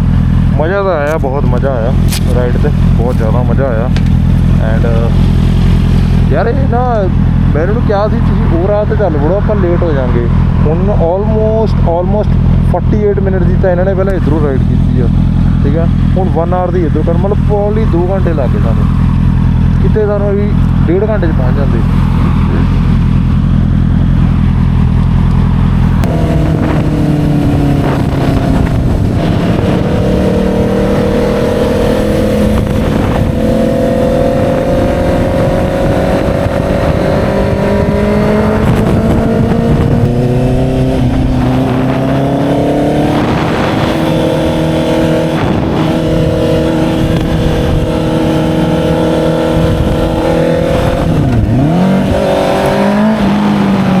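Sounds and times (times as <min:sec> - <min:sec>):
motorcycle engine running: 0:00.0 - 0:54.0
wind rushing: 0:21.8 - 0:54.0.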